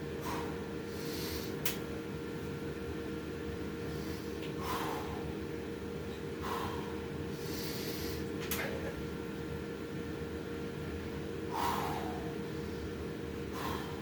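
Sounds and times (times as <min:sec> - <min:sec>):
steady low hum: 0:00.0 - 0:14.0
man breathing hard: 0:00.2 - 0:01.6, 0:03.8 - 0:05.4, 0:06.4 - 0:08.3, 0:11.4 - 0:14.0.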